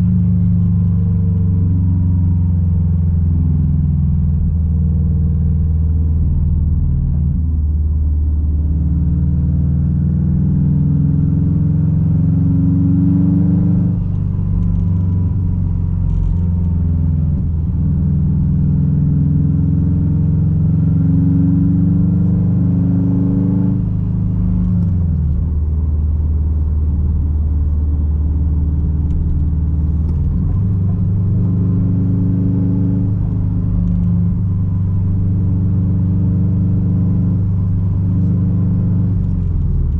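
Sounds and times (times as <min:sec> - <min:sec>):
car exhaust drone: 0:00.0 - 0:39.9.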